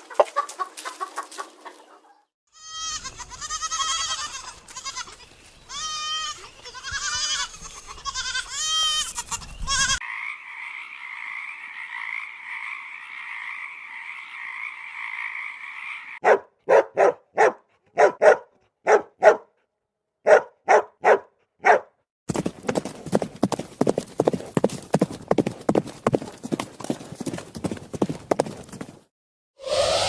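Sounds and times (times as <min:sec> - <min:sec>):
frog croaking: 0:10.0 - 0:16.2
horse hooves clip-clopping: 0:22.3 - 0:29.1.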